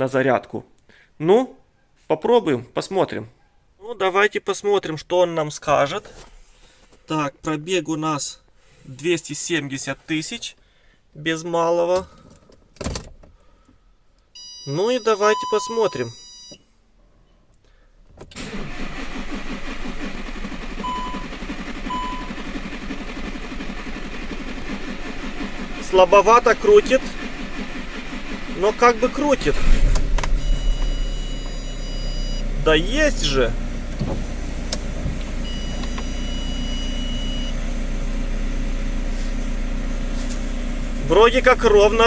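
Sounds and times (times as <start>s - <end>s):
short beeps: 14.4s - 16.6s, 29.4s - 32.6s
starter motor cranking: 18.4s - 36.1s
diesel van engine idling: 18.4s - 42.0s
starter engaging clunk: 29.2s - 32.5s.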